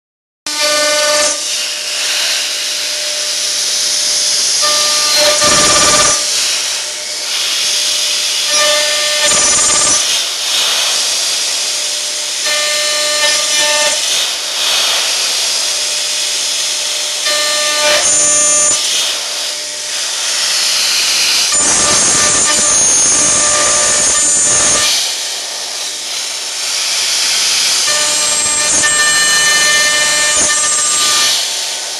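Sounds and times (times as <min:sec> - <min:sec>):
router hissing cutting steel: 0:00.5 - 0:31.9
spindle whine: 0:02.2 - 0:07.3, 0:26.9 - 0:31.4.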